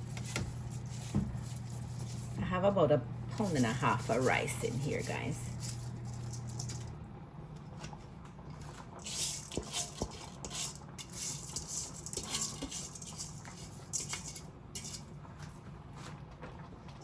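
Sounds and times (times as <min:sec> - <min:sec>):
spoon stirring rice in liquid: 0:00.0 - 0:02.4, 0:03.4 - 0:06.9, 0:08.9 - 0:16.2.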